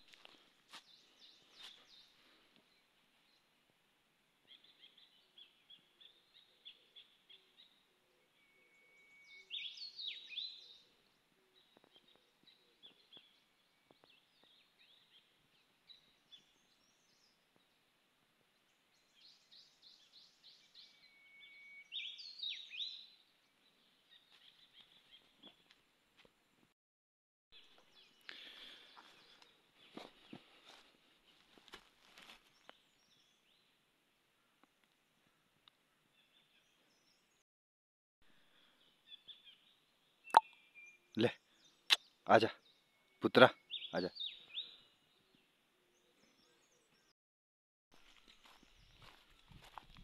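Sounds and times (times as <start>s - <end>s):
birds chirping: 4.4s - 26.0s, 27.6s - 37.4s, 38.5s - 47.2s, 48.0s - 50.0s
bird song with whistle: 8.3s - 10.6s, 20.2s - 23.0s.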